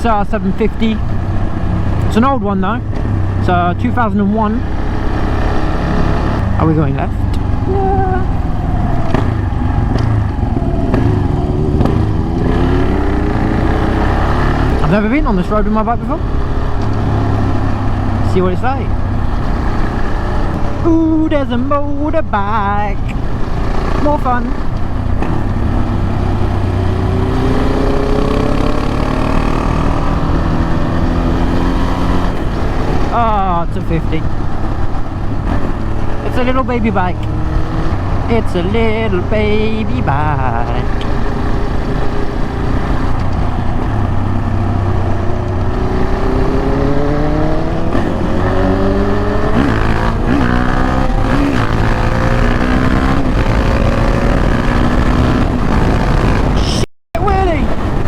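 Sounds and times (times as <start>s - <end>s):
motorcycle engine accelerating: 0.0s - 58.0s
wind noise: 4.6s - 15.4s, 40.8s - 58.0s.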